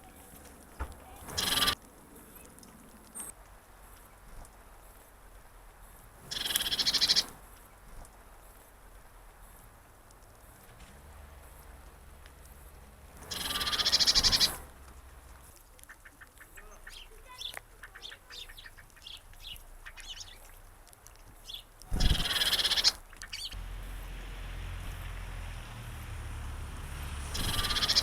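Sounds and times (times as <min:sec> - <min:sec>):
loud bird calls: 0:00.0 - 0:02.5, 0:06.2 - 0:07.5, 0:13.2 - 0:14.7, 0:15.8 - 0:20.6, 0:21.4 - 0:24.2, 0:27.2 - 0:28.0
soft bird chirps and clicks: 0:00.0 - 0:23.6, 0:27.3 - 0:28.0.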